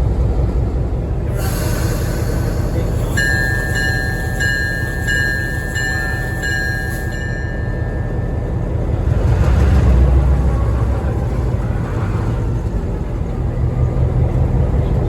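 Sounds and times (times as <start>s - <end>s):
train rumbling: 0.0s - 15.0s
railroad bell ringing: 1.4s - 9.0s.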